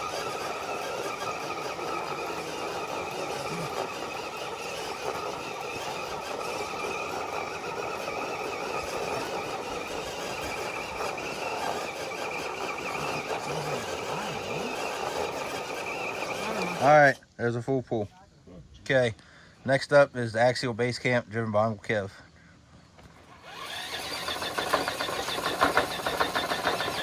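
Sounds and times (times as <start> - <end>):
electric motor and drivetrain whine: 0.0 - 17.2, 23.0 - 27.0
high steady squeal: 23.4 - 27.0.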